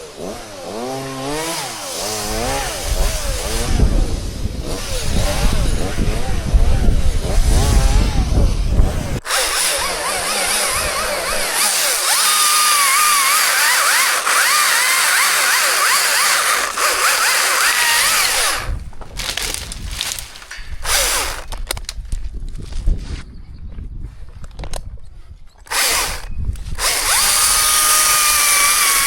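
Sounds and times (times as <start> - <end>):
chainsaw cutting wood: 0.0 - 22.0, 25.6 - 29.0.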